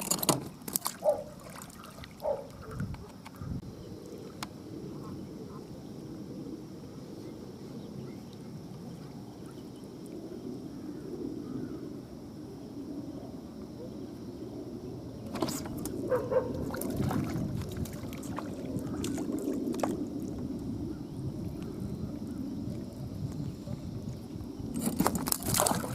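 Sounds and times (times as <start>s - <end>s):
water lapping: 0.0s - 2.8s, 15.3s - 20.7s, 21.4s - 25.9s
wind rumbling on microphone: 0.0s - 25.9s.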